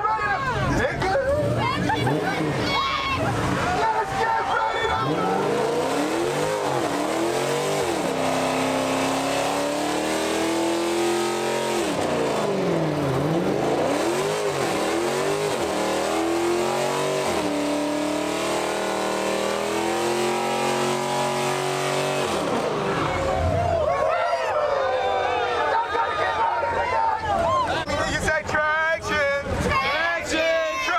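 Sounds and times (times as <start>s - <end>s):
car engine revving: 0.6s - 23.8s.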